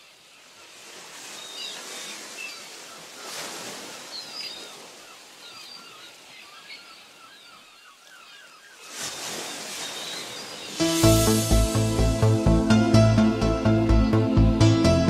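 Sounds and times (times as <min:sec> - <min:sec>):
small birds chirping: 0:00.0 - 0:10.8.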